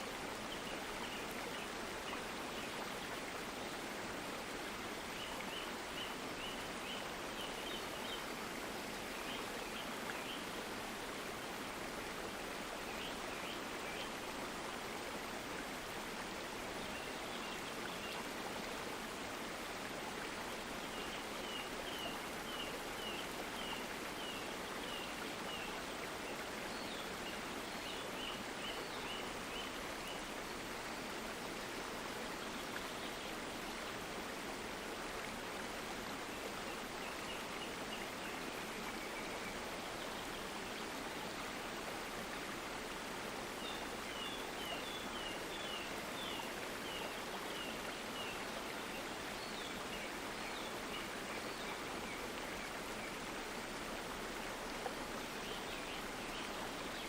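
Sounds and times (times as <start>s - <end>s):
stream flowing: 0.0s - 57.0s.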